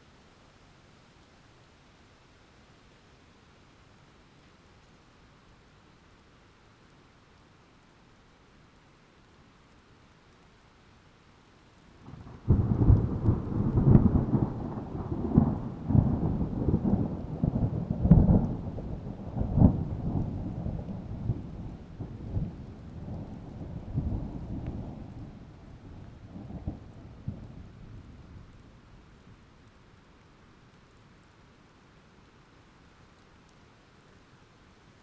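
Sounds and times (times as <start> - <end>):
thunderclap rumbling and cracking: 12.0 - 28.6.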